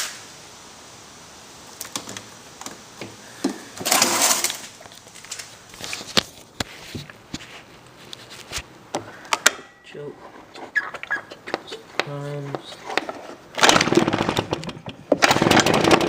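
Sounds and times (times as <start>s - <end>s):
scraping rustle: 3.8s - 8.7s, 10.1s - 14.5s
handling clicks and knocks: 11.3s - 16.0s.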